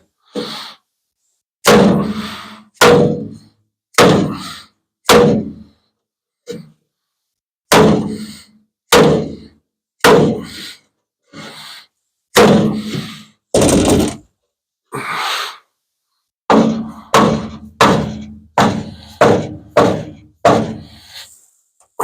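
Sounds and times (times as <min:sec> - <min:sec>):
hammer blows on sheet metal: 0:01.6 - 0:04.5, 0:05.1 - 0:05.7, 0:07.7 - 0:10.5, 0:16.5 - 0:21.0.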